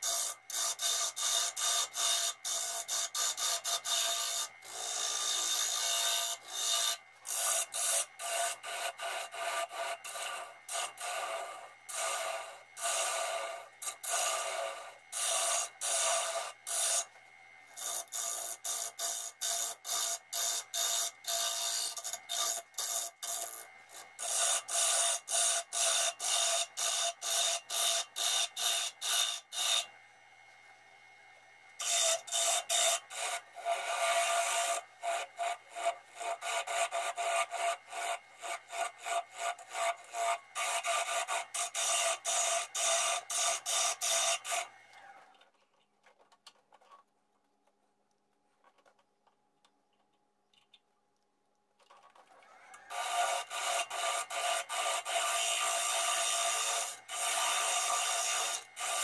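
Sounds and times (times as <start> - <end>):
tool scraping spinning wood: 0.0 - 29.9, 31.8 - 45.6, 51.9 - 59.0
lathe humming: 0.0 - 45.2.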